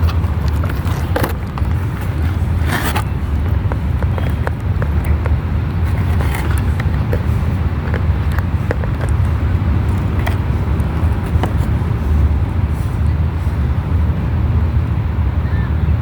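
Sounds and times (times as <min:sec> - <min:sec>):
small clicks and rustles: 0:00.0 - 0:12.3
steady low rumble: 0:00.0 - 0:16.0.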